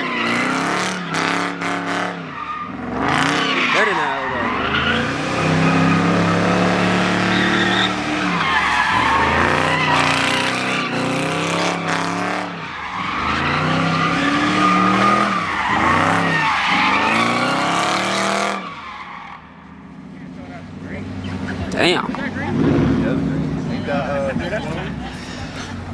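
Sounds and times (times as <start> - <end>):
car engine revving hard: 0.0 - 18.8, 20.5 - 25.2
tyre squeal: 2.3 - 11.1, 12.6 - 17.8.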